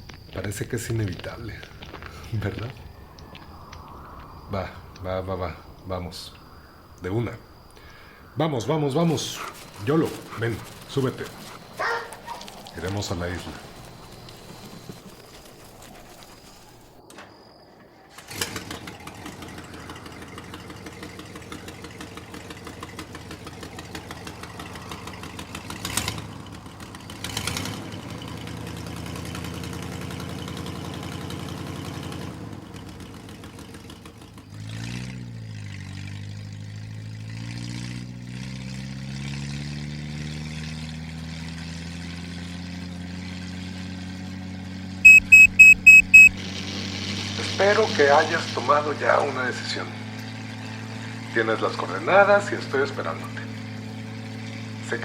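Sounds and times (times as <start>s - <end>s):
car engine running: 9.0s - 17.0s
car engine accelerating: 18.2s - 55.0s.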